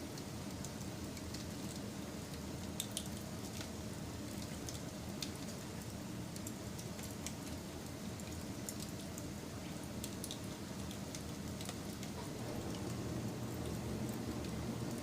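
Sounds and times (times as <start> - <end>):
wood fire crackling and popping: 10.0 - 15.0.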